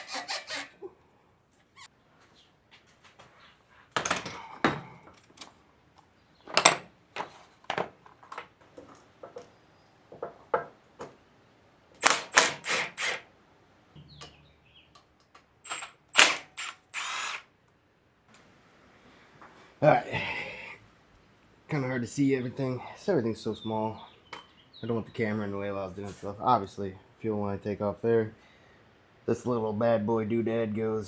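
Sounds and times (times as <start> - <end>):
short rasp: 0.0 - 0.8.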